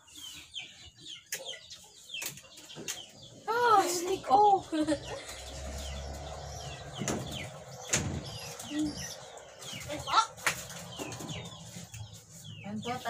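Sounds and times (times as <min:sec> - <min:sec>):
birds chirping: 0:00.0 - 0:13.0
sharp knocks: 0:06.9 - 0:08.7.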